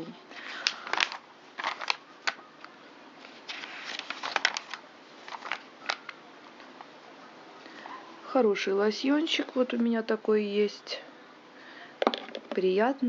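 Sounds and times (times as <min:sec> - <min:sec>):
paper pages rustling: 0:00.4 - 0:06.2.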